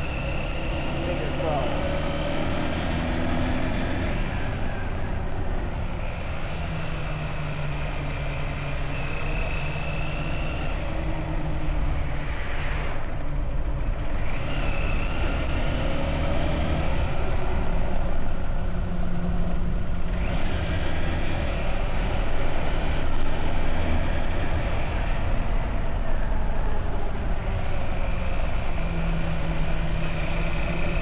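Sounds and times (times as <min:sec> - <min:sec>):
road and wind noise: 0:00.0 - 0:31.0.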